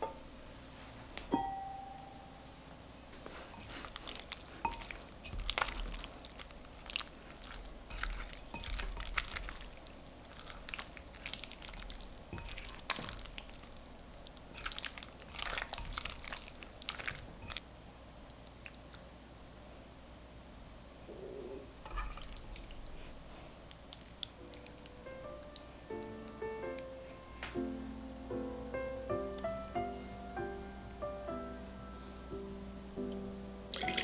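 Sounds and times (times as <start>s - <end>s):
kitchen utensils and dishes clinking: 7.9s - 9.6s.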